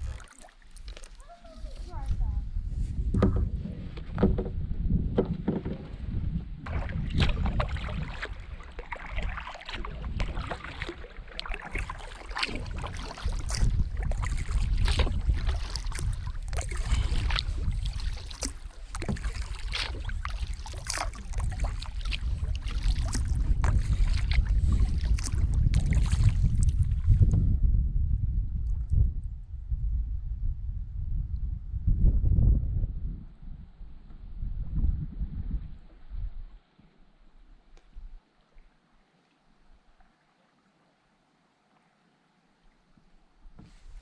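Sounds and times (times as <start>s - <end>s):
paddle splashes and drips: 0.0s - 2.0s, 6.6s - 27.4s, 35.6s - 44.0s
wind rumble on microphone: 0.8s - 36.6s.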